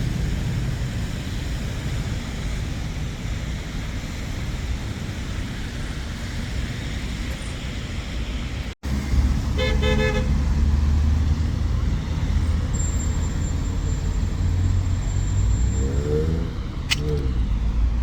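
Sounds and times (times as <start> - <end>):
road traffic: 0.0 - 18.0
car horn: 9.5 - 10.5.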